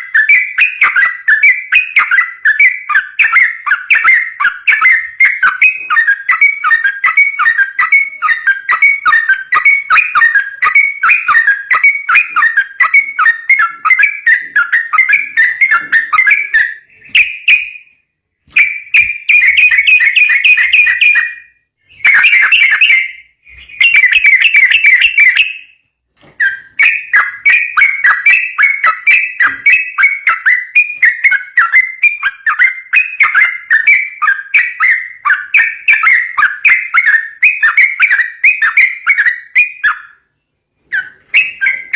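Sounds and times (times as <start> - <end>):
bird singing chattering phrases: 22.0 - 25.5.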